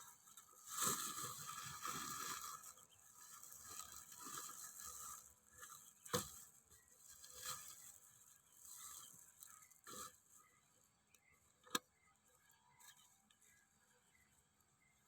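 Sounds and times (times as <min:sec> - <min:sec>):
rustling and scraping of seed pieces: 0:00.0 - 0:10.7.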